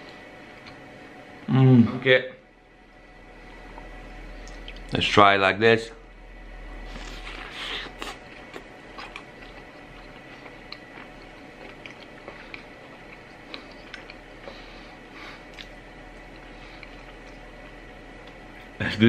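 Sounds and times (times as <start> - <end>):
man chewing soft pastry: 0.1 - 1.2, 6.8 - 18.8.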